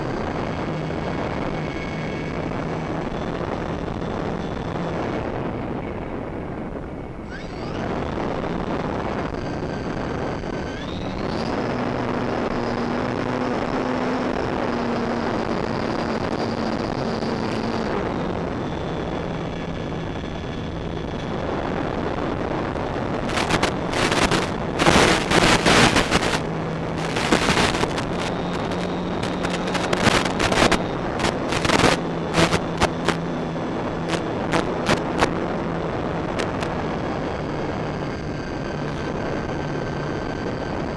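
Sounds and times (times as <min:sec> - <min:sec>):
wind gusts crackling on microphone: 0:00.0 - 0:40.9
electric motors whining: 0:07.2 - 0:35.0.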